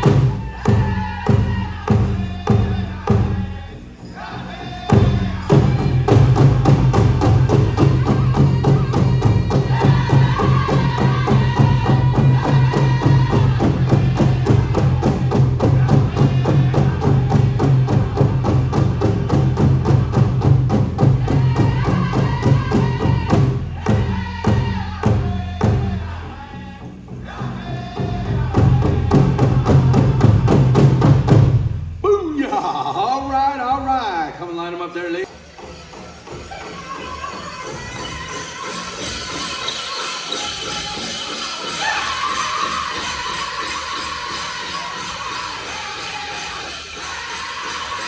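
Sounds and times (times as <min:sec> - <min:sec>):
large drum beating: 0:00.0 - 0:03.5, 0:04.9 - 0:26.1, 0:27.9 - 0:33.0
people singing: 0:00.0 - 0:48.0.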